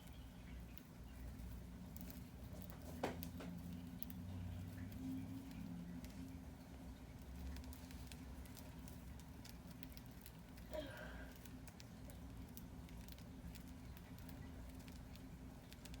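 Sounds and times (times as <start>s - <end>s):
light clicks and taps: 0.0s - 6.4s, 11.3s - 16.0s
birds shuffling and pecking: 0.0s - 16.0s
faint low hum: 0.0s - 16.0s.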